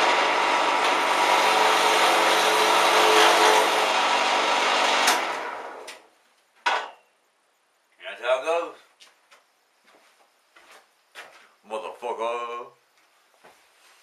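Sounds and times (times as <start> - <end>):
wood lathe motor humming: 0.0 - 5.8.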